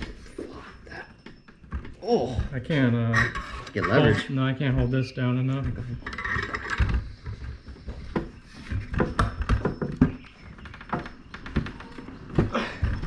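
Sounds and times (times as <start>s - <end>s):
tools and metal parts clicking: 6.0s - 7.5s.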